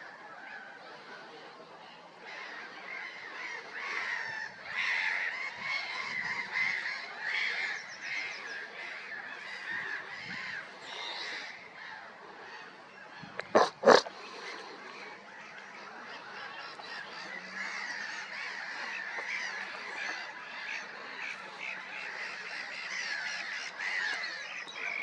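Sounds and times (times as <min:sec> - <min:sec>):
geese calling: 0:13.2 - 0:15.1.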